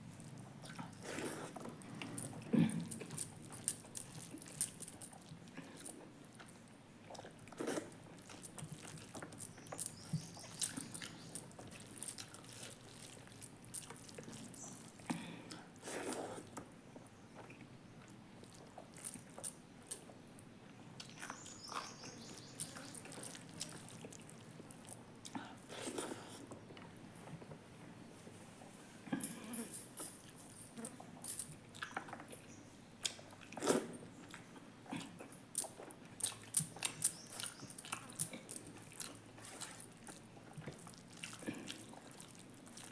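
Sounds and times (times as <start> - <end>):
person chewing and biting food: 35.6 - 42.9.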